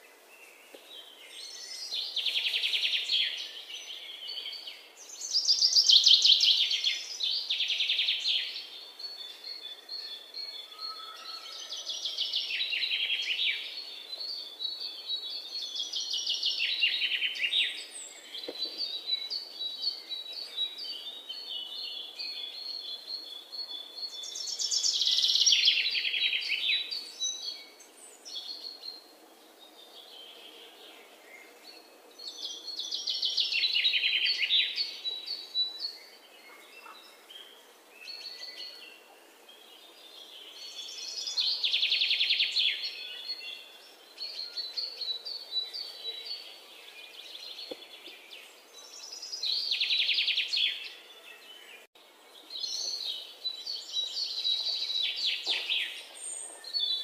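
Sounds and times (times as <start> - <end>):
bird chirps: 29.7 - 57.0.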